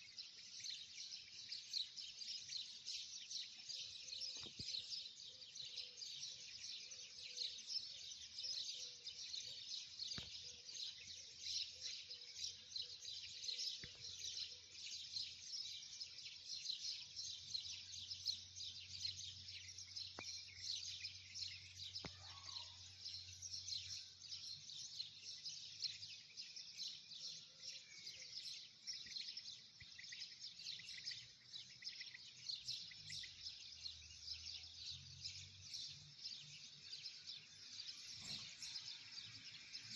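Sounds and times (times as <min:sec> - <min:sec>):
birds chirping chorus: 0:00.0 - 0:39.9.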